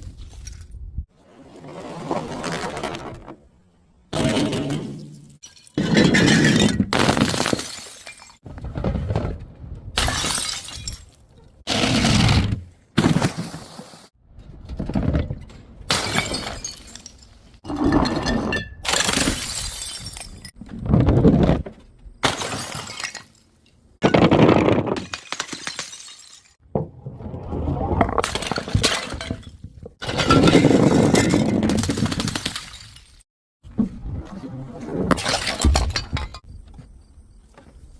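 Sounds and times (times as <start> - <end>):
glass bottles smashing: 5.4 - 8.4, 10.0 - 11.2, 15.9 - 20.6, 22.2 - 23.4, 24.0 - 26.6, 28.2 - 33.2.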